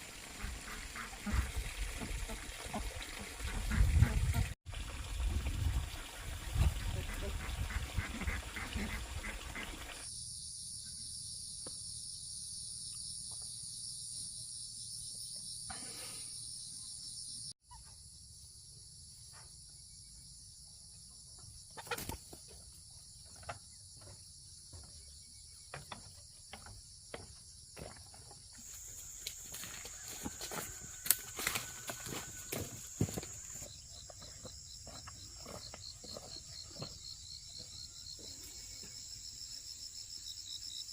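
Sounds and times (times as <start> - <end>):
insects droning: 10.0 - 40.9.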